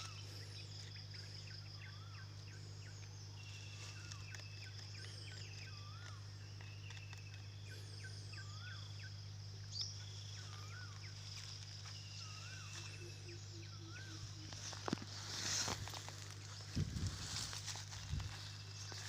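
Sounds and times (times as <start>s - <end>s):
birds whistling: 0.0s - 19.0s
high insect drone: 0.0s - 19.0s
low steady hum: 0.0s - 19.0s.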